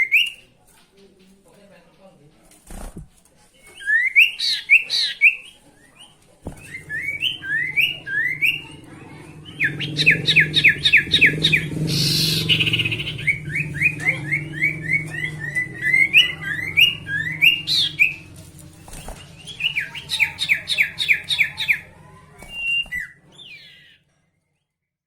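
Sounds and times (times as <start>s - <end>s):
songbird singing: 0.0s - 1.5s, 3.6s - 24.9s
low background hum: 5.7s - 24.7s.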